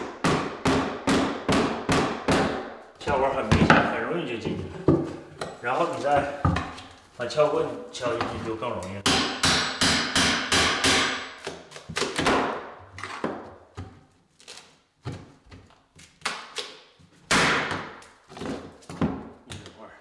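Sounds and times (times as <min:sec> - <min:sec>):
hammer striking steel pry bar: 0:09.1 - 0:11.3.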